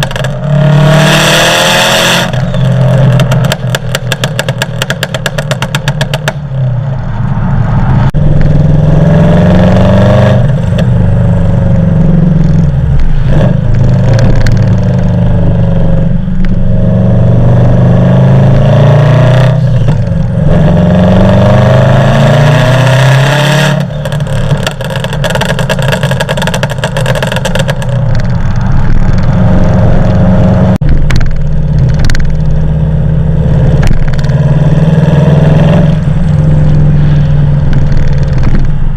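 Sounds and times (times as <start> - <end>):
exhaust crackling pops: 0.0 - 0.5, 2.2 - 6.4, 23.8 - 30.2, 30.8 - 32.8, 33.6 - 34.6, 36.7 - 38.9
car engine accelerating: 0.0 - 38.9.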